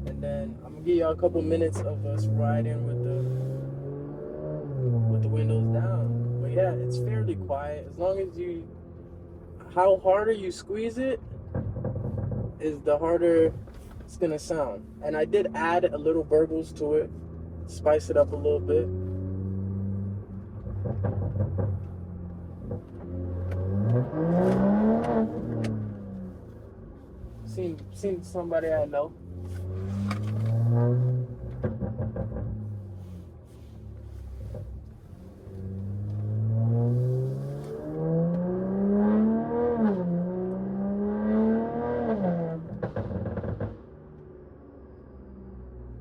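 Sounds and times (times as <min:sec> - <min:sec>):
car engine burbling with pops: 0:00.0 - 0:03.8, 0:11.1 - 0:18.3, 0:18.9 - 0:40.7, 0:42.0 - 0:44.4.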